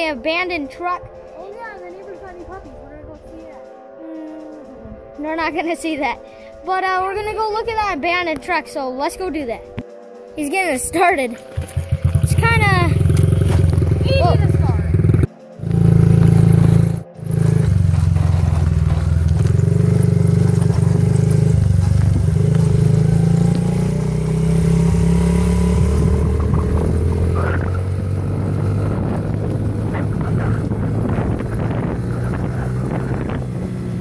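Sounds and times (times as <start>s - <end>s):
small motorbike engine running: 11.4s - 34.0s.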